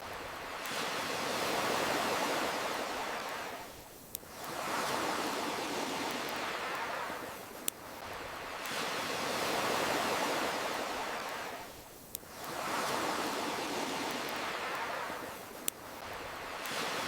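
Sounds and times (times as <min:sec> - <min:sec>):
ocean waves crashing: 0:00.1 - 0:03.7, 0:04.3 - 0:17.0
campfire popping: 0:14.0 - 0:17.0.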